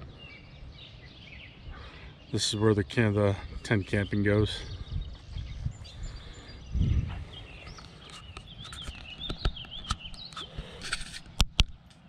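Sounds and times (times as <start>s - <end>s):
small birds singing: 0.0s - 12.0s
sharp clicks: 7.7s - 12.0s.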